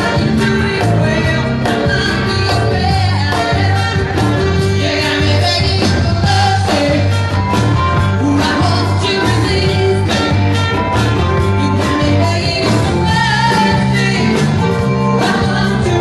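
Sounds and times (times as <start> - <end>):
band playing rock-pop song: 0.0 - 16.0
person singing lead vocal: 0.0 - 16.0.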